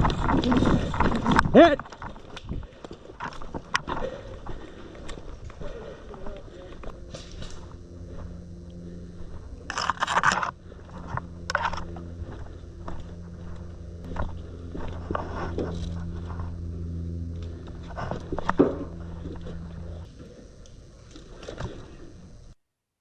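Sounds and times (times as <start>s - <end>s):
crunching and scraping through brush: 0.0s - 20.1s
low steady hum: 0.0s - 22.6s.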